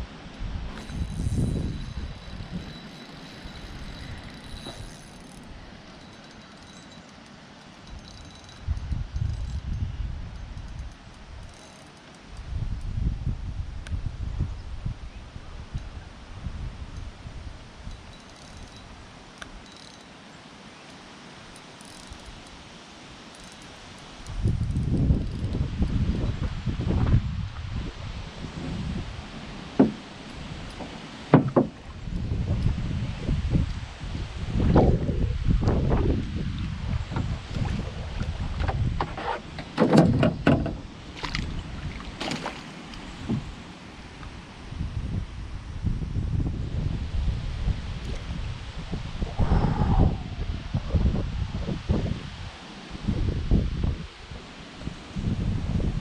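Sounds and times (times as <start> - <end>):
wind buffeting microphone: 0.0 - 6.1, 7.9 - 11.4, 12.4 - 18.1, 24.3 - 56.0
canoe knocks and clunks: 29.7 - 32.0, 37.1 - 43.7
water sloshing: 37.1 - 44.2.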